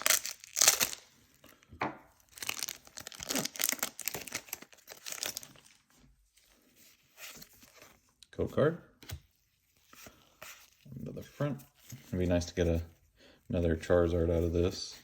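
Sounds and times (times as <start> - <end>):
foil wrapper tearing and crinkling: 0.0 - 1.1, 2.3 - 5.7.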